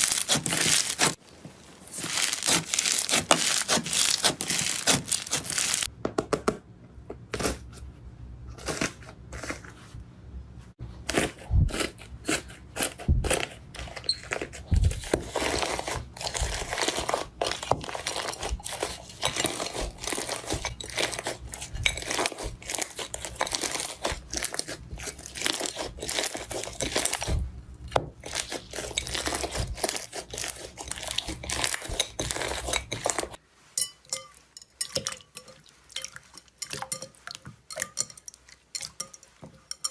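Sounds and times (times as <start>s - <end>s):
crunchy material being crushed: 0.0s - 5.9s, 11.0s - 33.4s.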